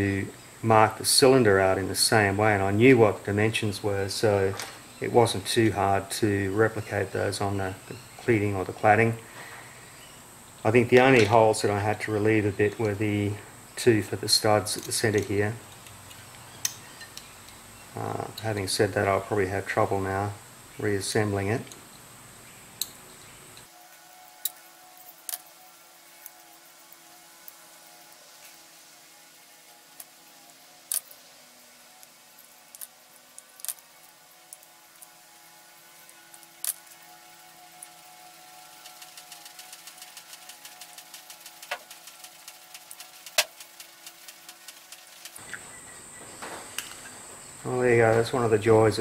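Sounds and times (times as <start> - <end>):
small metal parts clicking: 32.7 - 33.8, 36.3 - 37.0, 37.7 - 45.4
faint fast ticking: 37.8 - 45.6.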